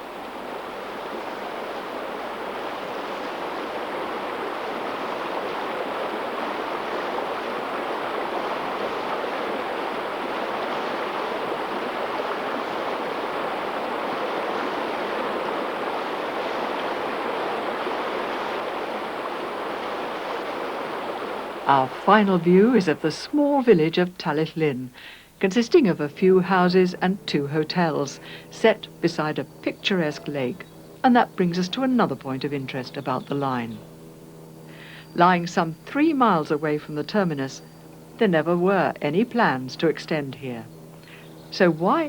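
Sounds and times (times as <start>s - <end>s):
waterfall rushing: 0.0s - 23.6s, 26.4s - 32.5s.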